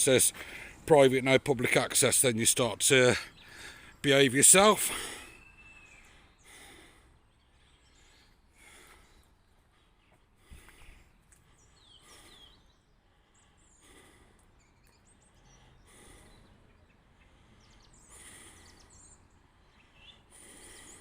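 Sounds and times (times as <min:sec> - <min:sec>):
faint bird chirps: 0:04.9 - 0:21.0.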